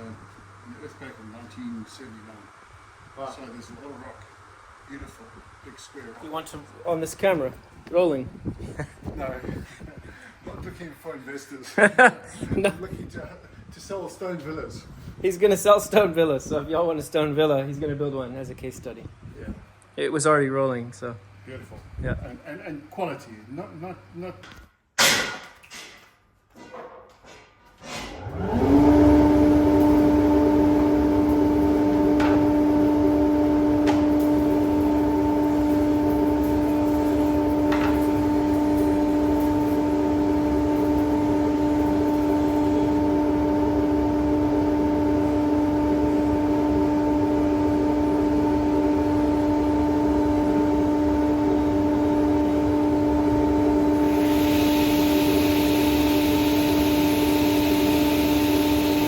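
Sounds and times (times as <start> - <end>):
electric motor humming: 28.2 - 59.0
hiss: 54.0 - 59.0.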